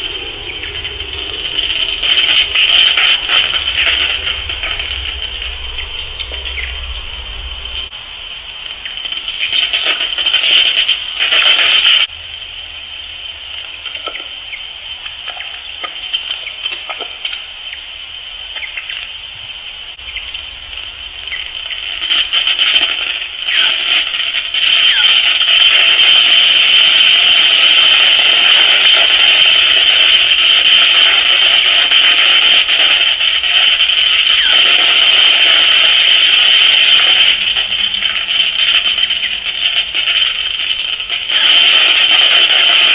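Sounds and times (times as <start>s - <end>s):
steady high hiss: 0.0s - 42.9s
bats squeaking and clicking: 8.8s - 12.1s, 13.5s - 17.5s, 18.5s - 19.2s, 20.0s - 42.9s.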